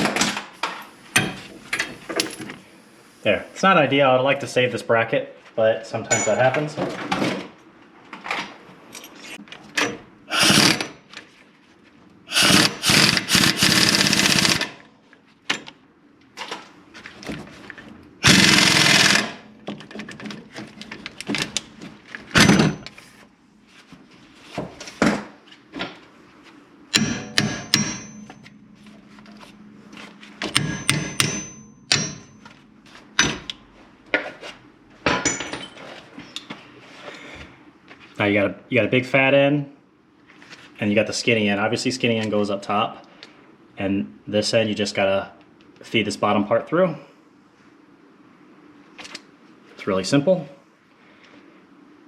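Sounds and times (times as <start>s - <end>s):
metal tools clanking and clicking: 1.2s - 2.6s, 6.1s - 6.6s, 30.3s - 32.6s, 35.1s - 36.5s
harsh bursts of noise: 10.3s - 11.0s, 12.3s - 14.7s, 18.2s - 19.4s.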